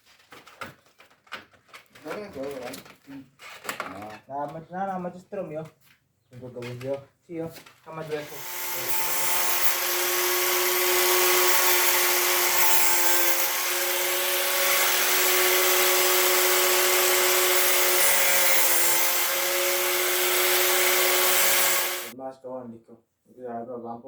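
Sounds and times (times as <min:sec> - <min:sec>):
high-speed electric tool whining: 0:08.2 - 0:22.1.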